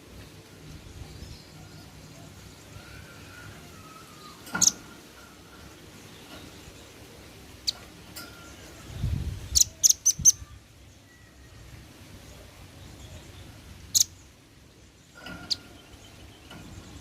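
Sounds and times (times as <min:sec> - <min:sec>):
bird chip calls: 0:09.5 - 0:10.6.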